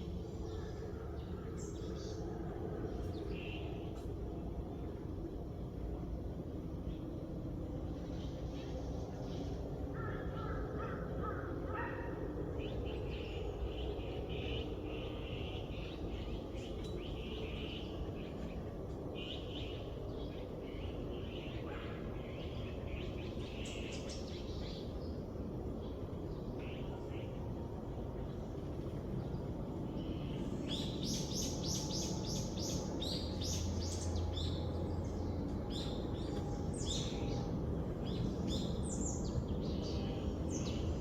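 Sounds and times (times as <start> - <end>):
outdoor background hiss: 0.0 - 41.0.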